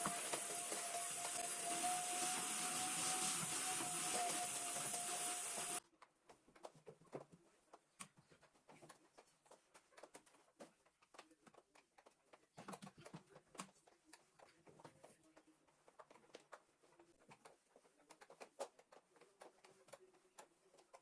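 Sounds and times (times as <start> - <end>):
appliance motor whining: 0.0 - 5.8.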